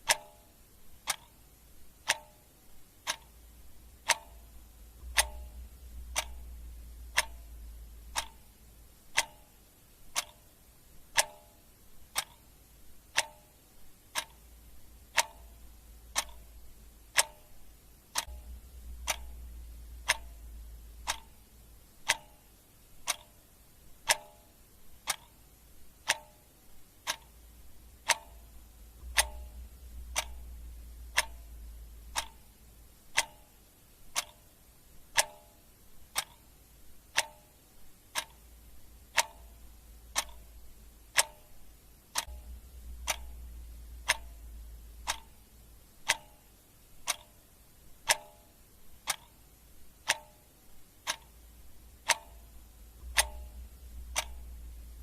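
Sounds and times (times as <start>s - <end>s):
clock ticking: 0.0s - 55.0s
low rumble: 4.0s - 8.9s, 18.3s - 21.8s, 27.8s - 32.9s, 42.3s - 45.3s, 52.6s - 55.0s.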